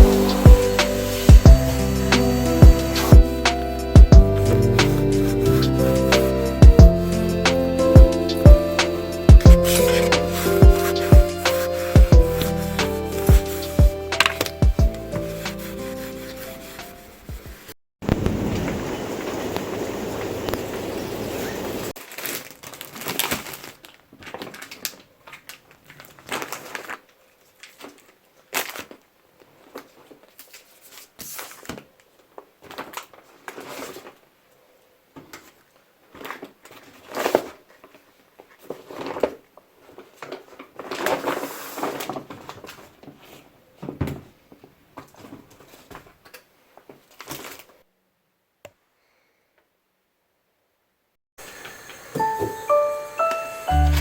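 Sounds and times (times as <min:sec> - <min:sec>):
steady rushing noise: 0:00.0 - 0:04.2
rustling and crinkling: 0:09.6 - 0:18.4, 0:21.9 - 0:47.9.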